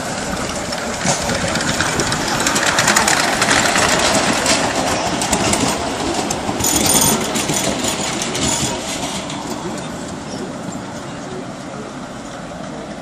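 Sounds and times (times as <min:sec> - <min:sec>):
train wheels clattering on rails: 0:00.0 - 0:13.0.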